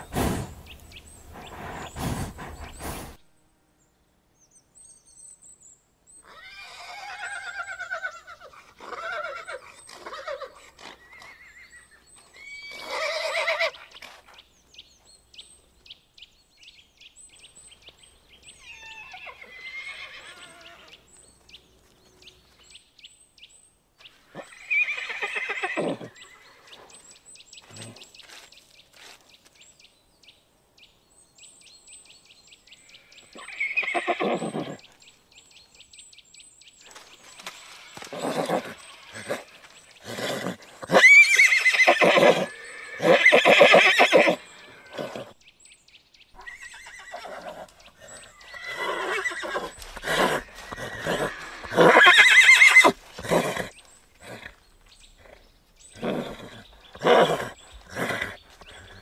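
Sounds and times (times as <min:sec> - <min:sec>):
horses neighing: 0:00.0 - 0:03.2, 0:06.3 - 0:14.1, 0:18.6 - 0:21.0, 0:24.3 - 0:26.8, 0:33.0 - 0:34.9, 0:37.4 - 0:45.4, 0:46.4 - 0:59.0.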